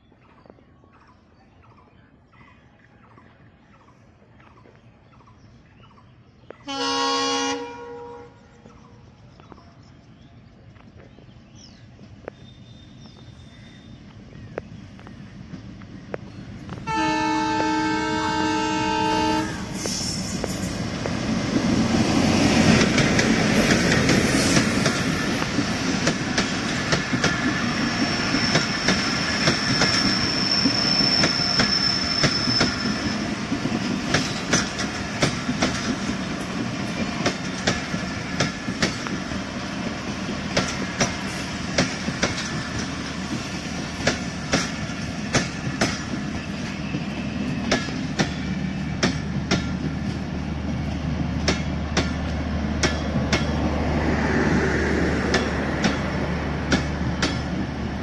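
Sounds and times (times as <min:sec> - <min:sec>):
train coaches rumbling: 0:00.2 - 0:58.0
locomotive multi-tone horn: 0:06.7 - 0:08.4, 0:16.8 - 0:20.0
diesel locomotive engine running: 0:12.0 - 0:58.0
thin high wheel squeal: 0:29.7 - 0:33.1
wheels clicking over rail joints: 0:31.2 - 0:53.7, 0:55.2 - 0:57.8.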